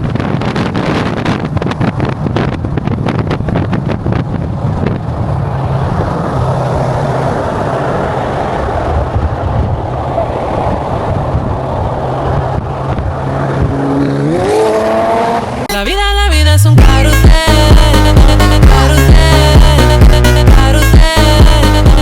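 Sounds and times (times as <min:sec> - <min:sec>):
car engine running: 0:11.0 - 0:22.0.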